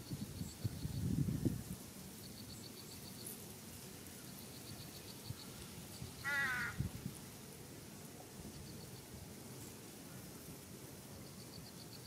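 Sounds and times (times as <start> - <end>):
harsh crow-like bird call: 6.2 - 6.9.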